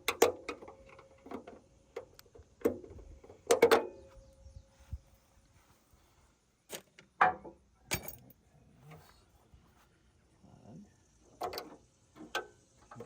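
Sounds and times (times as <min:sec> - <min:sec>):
metallic clinks and knocks: 0:07.9 - 0:08.4.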